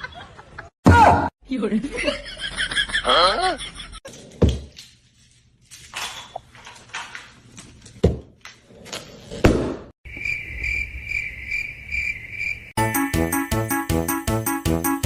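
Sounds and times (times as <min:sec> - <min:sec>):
crickets chirring: 0:10.1 - 0:12.8
music: 0:12.8 - 0:15.0.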